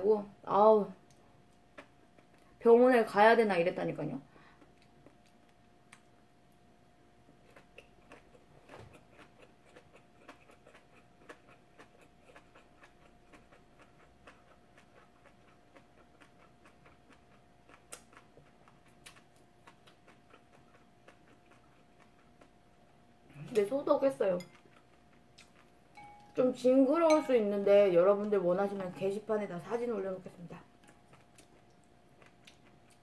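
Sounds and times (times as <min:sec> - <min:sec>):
faint electrical hum: 0:00.0 - 0:33.0
person chewing food: 0:01.5 - 0:02.5, 0:04.6 - 0:06.6, 0:07.2 - 0:23.6, 0:24.4 - 0:26.3, 0:30.8 - 0:33.0.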